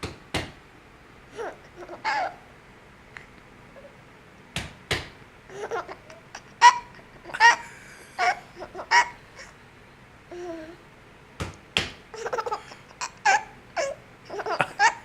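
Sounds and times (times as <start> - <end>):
sharp knocks: 0.0 - 0.6, 4.6 - 5.2
baby giggling: 1.3 - 2.5, 5.5 - 9.5, 12.2 - 15.0.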